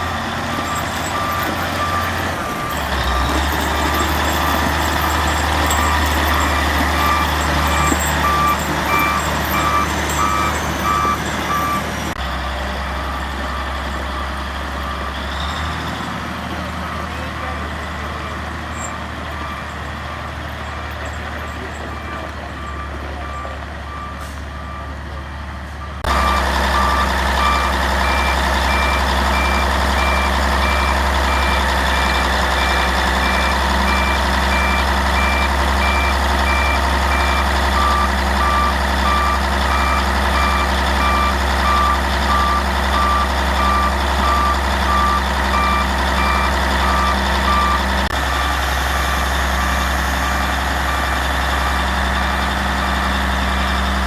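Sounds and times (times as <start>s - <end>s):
diesel engine running: 0.0s - 54.0s
backup alarm beeping: 0.5s - 11.9s, 26.0s - 47.9s.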